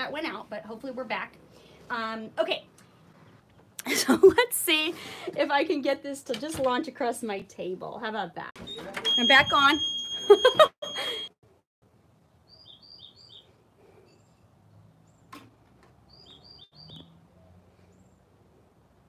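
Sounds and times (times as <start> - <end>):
small bird chirping: 12.5 - 15.3, 16.1 - 17.2.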